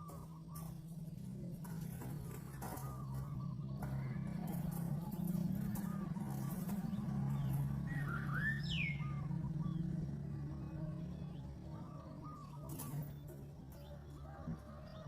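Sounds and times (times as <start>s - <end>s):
small bird chirping: 0.0s - 15.0s
steady low hum: 0.0s - 15.0s
downward-sweeping bird whistle: 7.5s - 9.8s.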